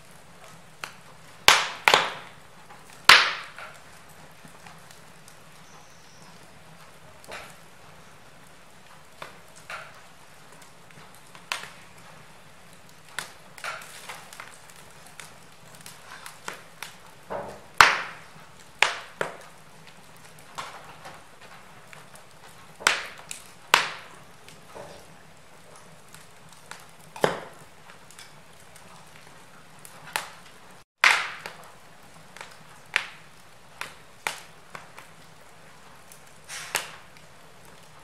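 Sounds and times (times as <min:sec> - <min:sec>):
faint steady hiss: 0:00.0 - 0:30.8
wood fire crackling: 0:00.0 - 0:38.0.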